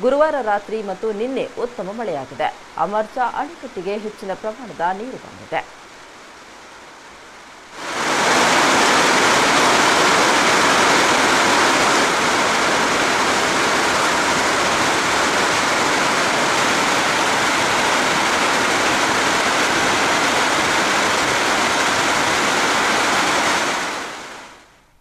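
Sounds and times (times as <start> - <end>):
water rushing over dam: 7.7 - 24.6.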